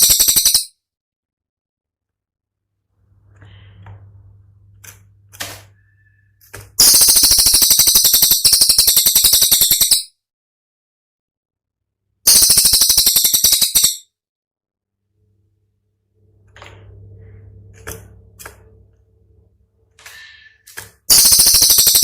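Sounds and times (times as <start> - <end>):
sharp high-pitched rattling song: 0.0 - 0.7, 6.8 - 10.1, 12.3 - 14.1, 21.1 - 22.0
faint low hum: 2.8 - 6.5, 15.0 - 20.4.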